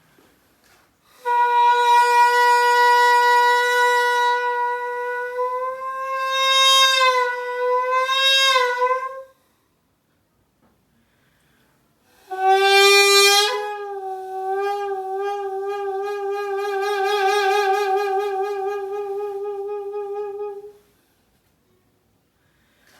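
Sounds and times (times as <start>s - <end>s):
double-reed oboe long note: 1.2s - 9.3s, 12.2s - 20.8s.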